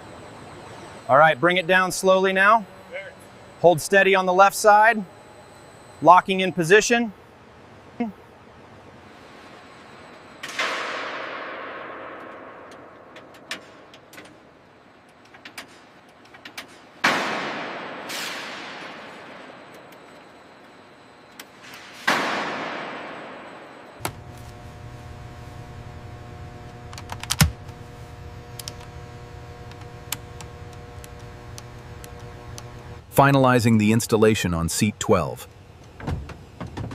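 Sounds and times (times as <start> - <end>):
machine hum: 0.0 - 36.9
loud bangs with echo: 17.0 - 19.2, 22.0 - 23.7
clicks: 26.6 - 27.8, 28.5 - 29.0, 29.6 - 32.9.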